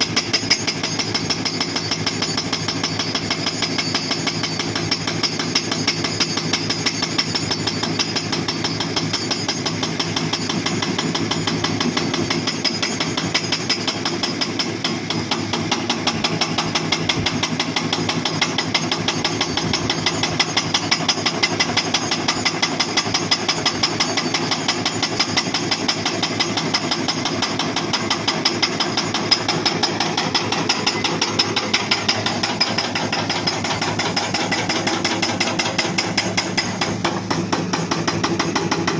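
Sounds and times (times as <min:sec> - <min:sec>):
hydraulic breaker pounding rock: 0:00.0 - 0:38.9
diesel engine running: 0:26.2 - 0:38.9.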